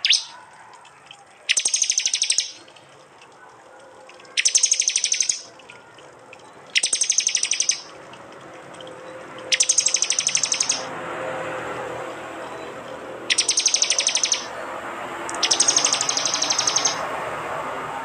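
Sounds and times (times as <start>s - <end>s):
bird rapid-fire call: 0.0s - 0.4s, 1.5s - 2.7s, 4.4s - 5.6s, 6.7s - 8.0s, 9.5s - 10.9s, 13.3s - 14.6s, 15.3s - 17.0s.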